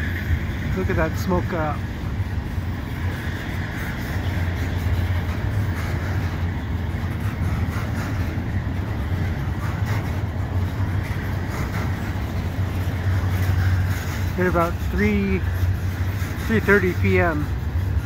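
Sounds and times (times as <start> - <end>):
diesel locomotives pulling away: 0.0 - 18.0
freight train rumbling past: 0.0 - 18.0.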